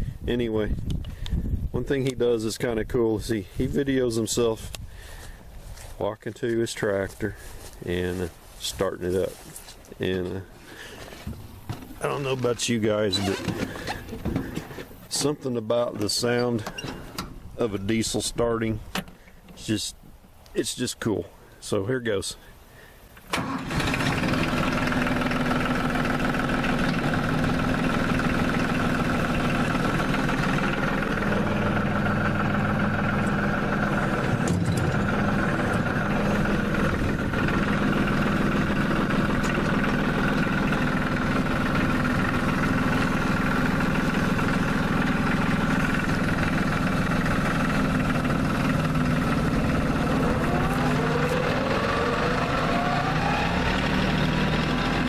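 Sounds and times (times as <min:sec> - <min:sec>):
diesel tractor engine idling: 0:10.0 - 0:15.4, 0:23.2 - 0:55.0
rising tone: 0:49.0 - 0:54.8.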